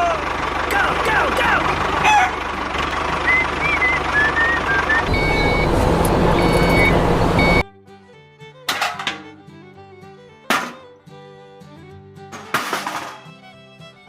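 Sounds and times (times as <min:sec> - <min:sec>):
vehicle engine rumble: 0:00.0 - 0:07.6
truck reversing beeps: 0:01.6 - 0:07.7.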